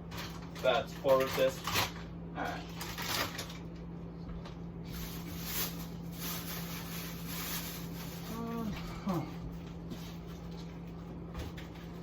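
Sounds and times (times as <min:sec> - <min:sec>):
food packages rustling: 0:00.1 - 0:03.7, 0:04.8 - 0:08.9.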